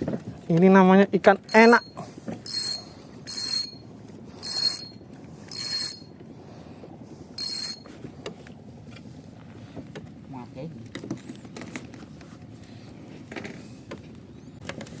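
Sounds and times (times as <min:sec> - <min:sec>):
fishing reel whirring: 0:02.5 - 0:03.8, 0:04.4 - 0:06.1, 0:07.4 - 0:07.9.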